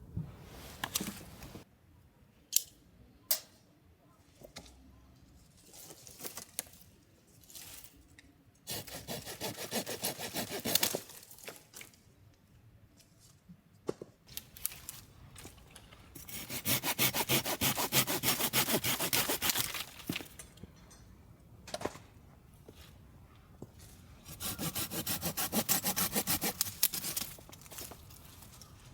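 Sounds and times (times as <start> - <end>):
saw cutting wood: 8.7 - 10.9, 16.3 - 19.8, 24.3 - 27.2.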